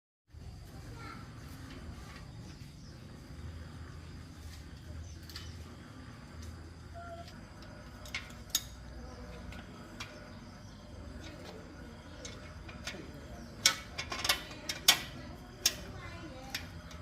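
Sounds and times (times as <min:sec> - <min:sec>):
metallic clicks and knocks: 0:11.1 - 0:17.0.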